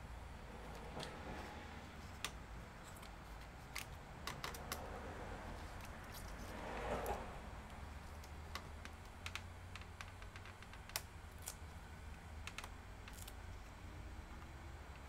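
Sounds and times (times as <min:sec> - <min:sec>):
low steady hum: 0:00.0 - 0:15.0
small parts clicking and tapping: 0:02.1 - 0:04.9, 0:07.7 - 0:13.8.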